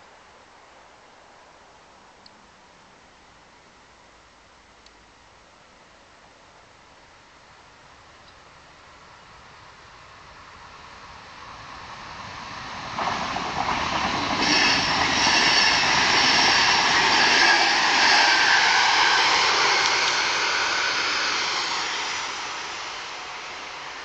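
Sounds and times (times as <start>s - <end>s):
train passing at speed: 9.6s - 24.0s.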